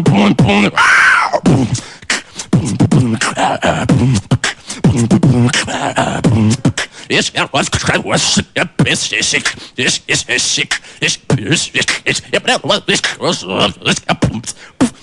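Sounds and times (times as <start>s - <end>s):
hummed vocal bass line: 0.0s - 0.8s, 1.4s - 1.8s, 2.5s - 9.4s, 11.2s - 14.6s.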